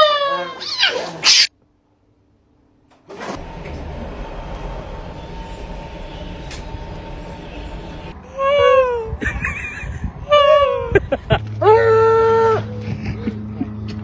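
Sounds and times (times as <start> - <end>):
steady low rumble: 3.4 - 14.0.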